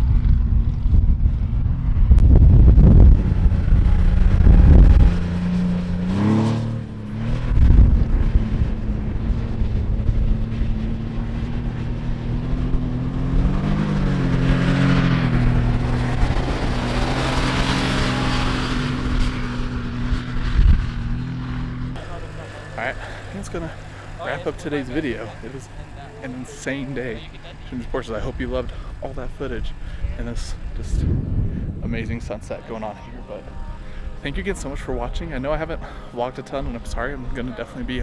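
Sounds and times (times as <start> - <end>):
wind buffeting microphone: 0.0 - 22.0, 27.9 - 35.9
car engine running: 0.0 - 38.0.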